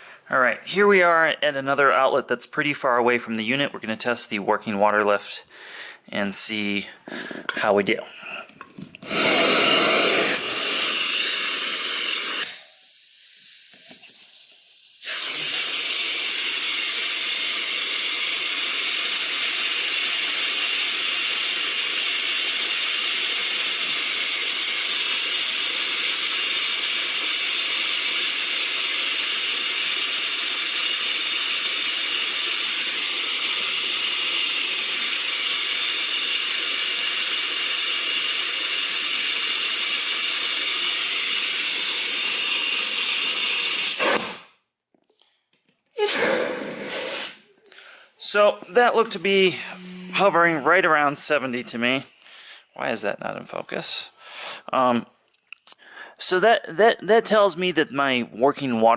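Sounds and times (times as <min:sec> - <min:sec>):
vacuum suction hissing: 0:09.0 - 0:44.6, 0:46.0 - 0:53.0.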